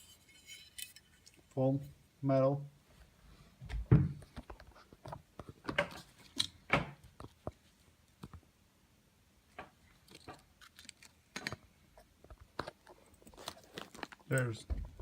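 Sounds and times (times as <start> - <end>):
gun parts clicking and knocking: 10.0 - 15.0.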